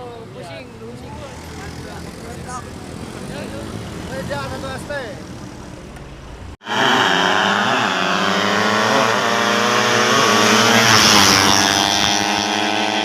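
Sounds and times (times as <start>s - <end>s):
motorcycle engine at high revs: 6.6s - 13.0s.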